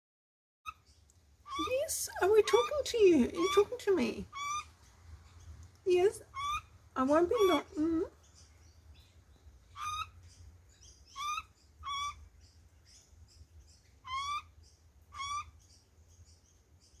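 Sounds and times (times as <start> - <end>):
bird rising calls: 1.4 - 12.3, 13.8 - 15.8.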